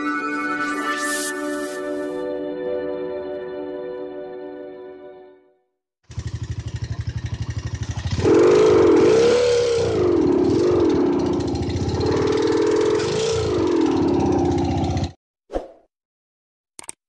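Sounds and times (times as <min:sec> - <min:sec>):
motorcycle engine idling and revving: 0:06.0 - 0:15.2.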